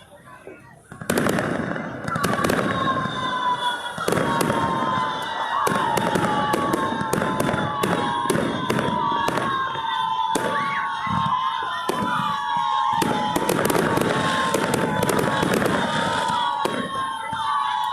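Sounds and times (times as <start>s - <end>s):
crowd voices: 0.0s - 17.9s
fireworks bangs and crackles: 0.0s - 17.9s
high falling whistle: 2.3s - 17.9s.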